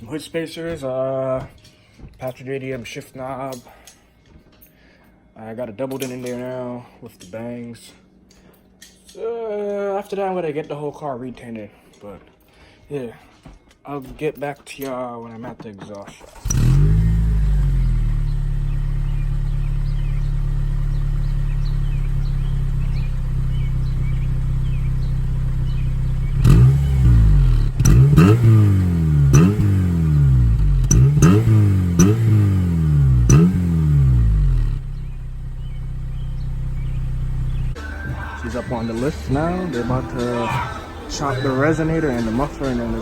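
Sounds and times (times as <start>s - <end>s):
car engine idling and revving: 16.2s - 43.0s.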